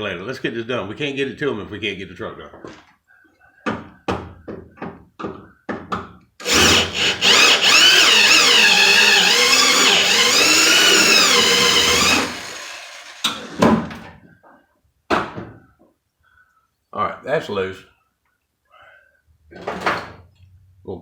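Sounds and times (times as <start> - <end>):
power drill drilling metal: 6.4 - 13.6.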